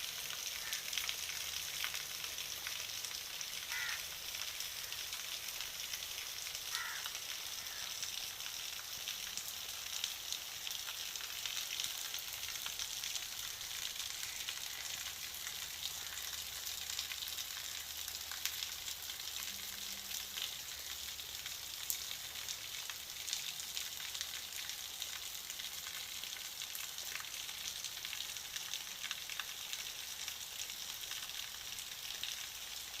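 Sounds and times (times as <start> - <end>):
steady rain falling: 0.0 - 33.0
water drips ticking: 0.0 - 33.0.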